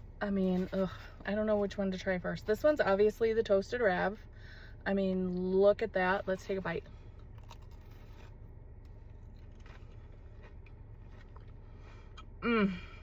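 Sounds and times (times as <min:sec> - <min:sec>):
low steady background hum: 0:00.0 - 0:13.0
biting and chewing food: 0:06.2 - 0:12.4.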